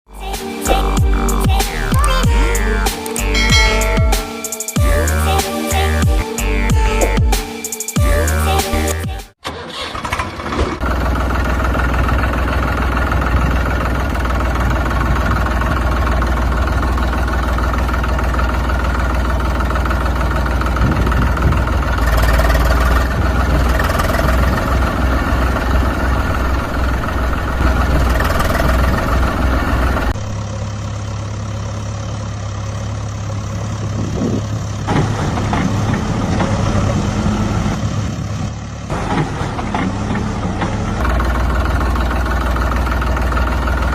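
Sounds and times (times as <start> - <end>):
steady engine hum: 0.1 - 4.2, 10.8 - 43.9
heavy vehicle engine running: 10.0 - 43.9.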